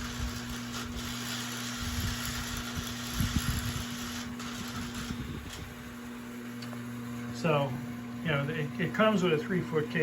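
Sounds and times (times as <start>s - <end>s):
small electric motors and gearing: 0.0s - 6.8s
steady electrical hum: 0.0s - 10.0s.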